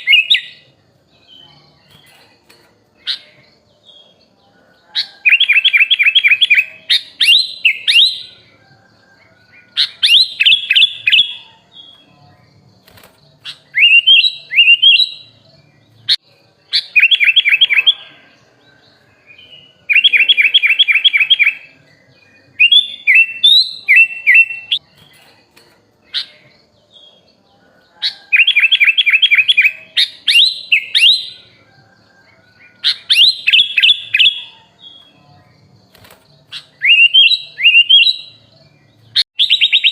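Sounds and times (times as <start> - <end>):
bird singing chirps and whistles: 0.0 - 2.4, 5.0 - 8.6, 9.6 - 12.3, 12.9 - 25.3, 28.0 - 31.7, 32.5 - 39.9.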